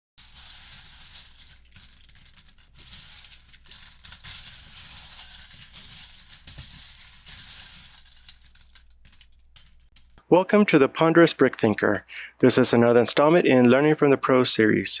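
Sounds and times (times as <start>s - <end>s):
plastic bricks clattering: 0.2s - 10.2s.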